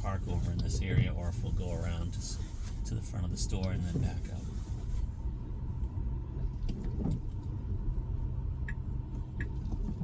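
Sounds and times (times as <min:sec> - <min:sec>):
car cabin and tyre rumble: 0:00.0 - 0:10.0
turn signal clicking: 0:08.6 - 0:10.0.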